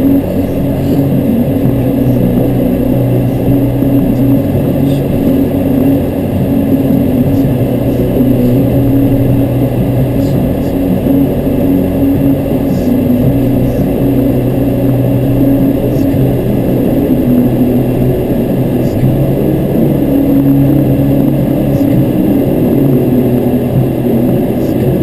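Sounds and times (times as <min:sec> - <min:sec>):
low engine-like drone: 0:00.0 - 0:25.0.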